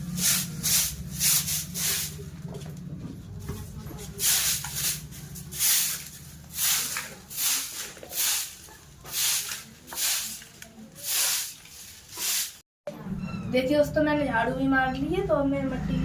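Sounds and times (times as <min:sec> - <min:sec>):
broom swishing on floor: 0:00.0 - 0:02.4, 0:04.0 - 0:12.6.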